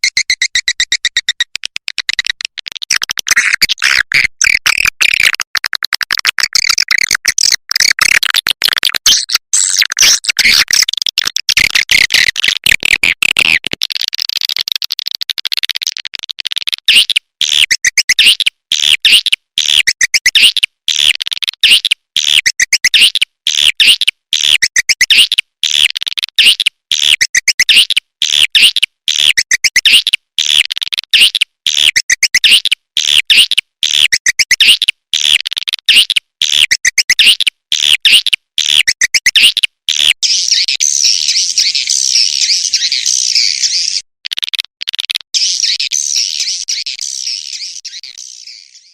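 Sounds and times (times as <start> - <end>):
swiftlet calls twittering: 0.0 - 1.5.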